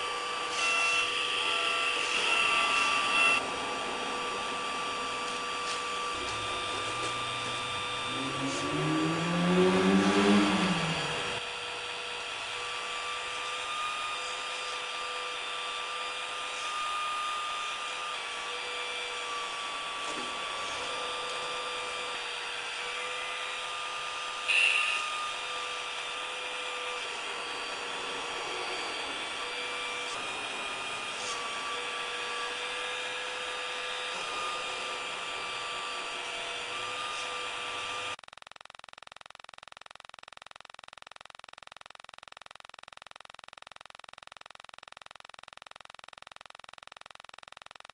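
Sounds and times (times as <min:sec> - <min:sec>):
small electric motors whining: 0:00.0 - 0:38.2.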